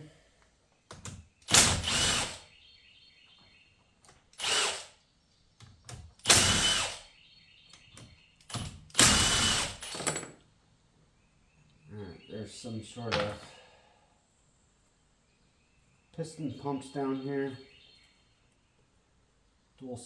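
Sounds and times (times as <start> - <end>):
cordless power driver spinning: 1.5 - 2.4, 4.4 - 4.9, 6.3 - 7.0, 9.0 - 9.9.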